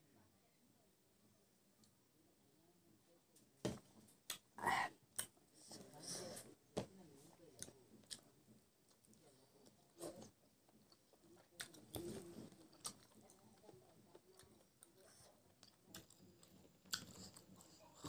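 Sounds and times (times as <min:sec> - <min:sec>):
man chewing with mouth clicks: 0:10.1 - 0:18.0.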